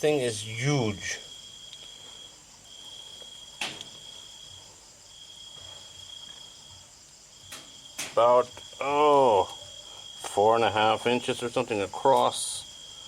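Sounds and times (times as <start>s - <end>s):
crickets trilling: 0.0s - 13.0s
faint insect chorus: 0.0s - 13.0s
sharp click: 7.5s - 8.2s.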